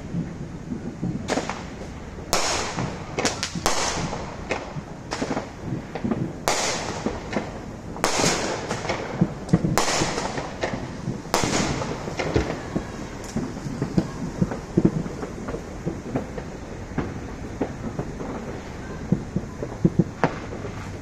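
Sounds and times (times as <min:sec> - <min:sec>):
firecrackers crackling: 0:00.0 - 0:21.0
firework bangs: 0:00.0 - 0:21.0.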